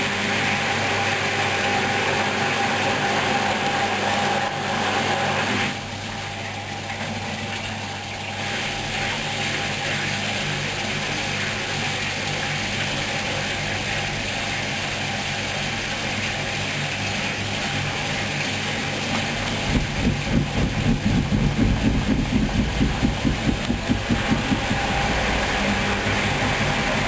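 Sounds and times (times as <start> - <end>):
washing machine motor hum: 0.0 - 27.0
rhythmic thumping of drum: 19.6 - 25.6.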